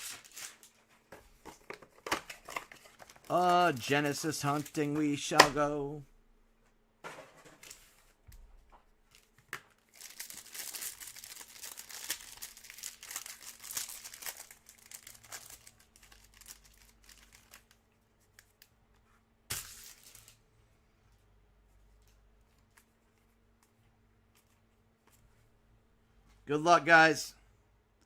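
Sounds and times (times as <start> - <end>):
plastic wrapper crinkling and tearing: 0.0 - 0.8, 2.0 - 5.2, 9.1 - 18.7.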